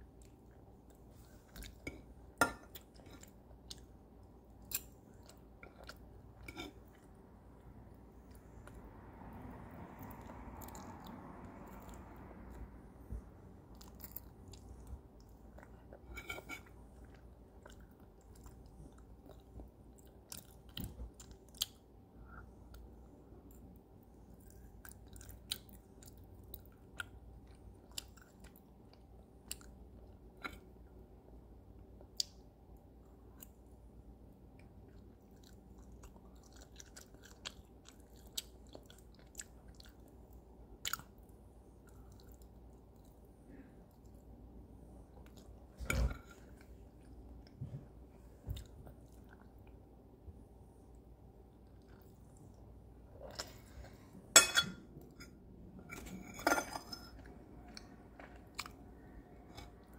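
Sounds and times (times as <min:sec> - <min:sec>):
person chewing with smacks: 0:13.2 - 0:23.7, 0:34.6 - 0:44.2, 0:45.1 - 0:49.8, 0:51.5 - 0:54.1, 0:57.1 - 0:59.9.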